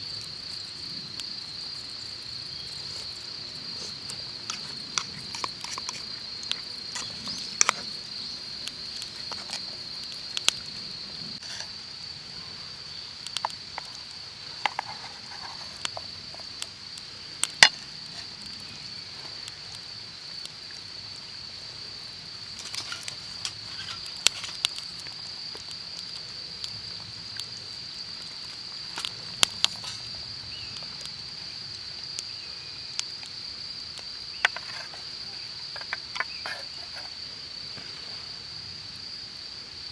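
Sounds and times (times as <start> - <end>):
insects trilling: 0.0 - 39.9
sharp clicks and pops: 3.7 - 11.7, 34.0 - 37.1.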